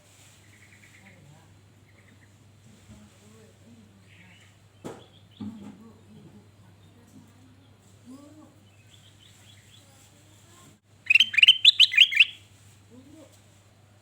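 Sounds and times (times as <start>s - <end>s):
bulbul singing chirping phrase: 11.1s - 12.4s.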